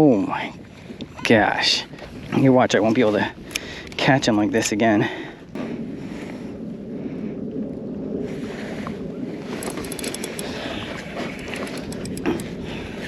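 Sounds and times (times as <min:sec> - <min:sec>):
small clicks and taps: 0:09.6 - 0:10.6, 0:11.4 - 0:12.5.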